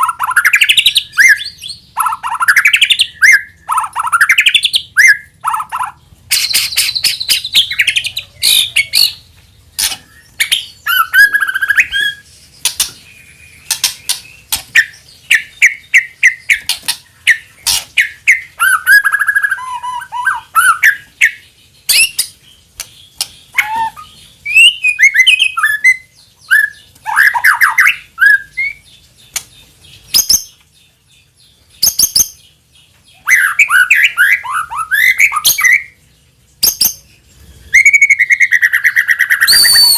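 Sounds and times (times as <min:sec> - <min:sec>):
songbird whistles and rattles: 0:38.9 - 0:39.9.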